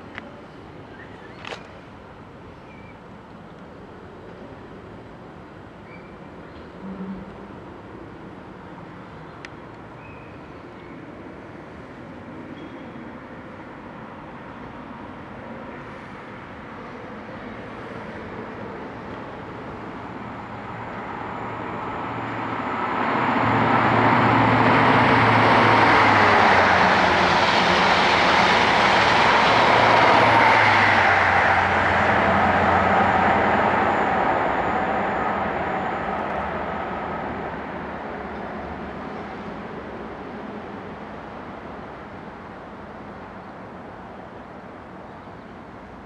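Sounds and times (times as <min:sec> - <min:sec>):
train passing: 0:13.0 - 0:45.0.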